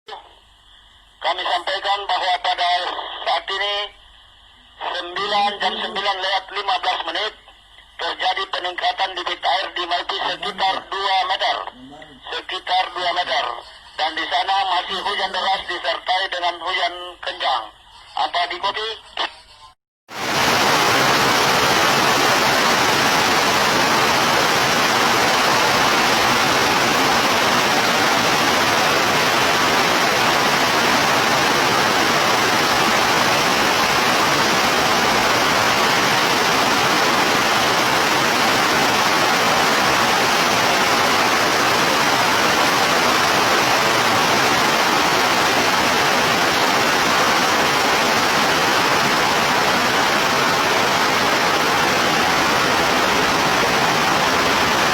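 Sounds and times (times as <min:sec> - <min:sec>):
heavy rain hissing: 0:20.1 - 0:54.9.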